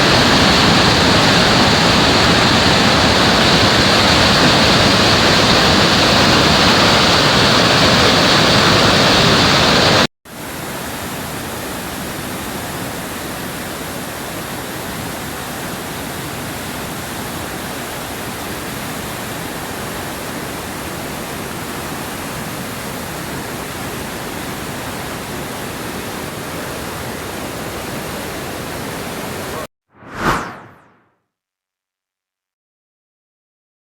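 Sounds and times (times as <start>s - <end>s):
waterfall roaring: 0.0s - 29.7s.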